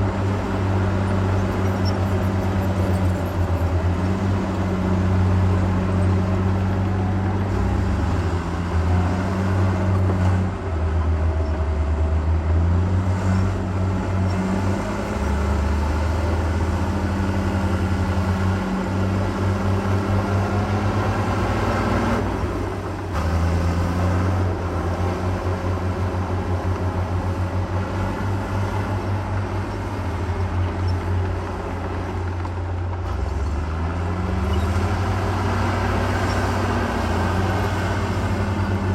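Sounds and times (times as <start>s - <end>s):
heavy diesel engine under load: 0.0s - 38.9s.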